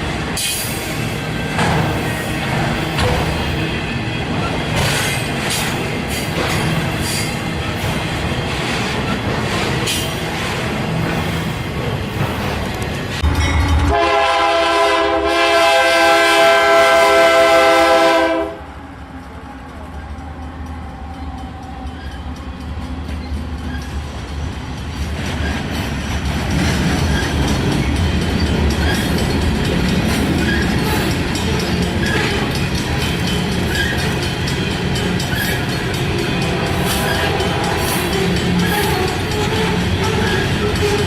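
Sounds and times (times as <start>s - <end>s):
freight train rumble and wheel clatter: 0.0s - 41.0s
locomotive air horn chord: 13.2s - 18.8s, 36.4s - 40.9s.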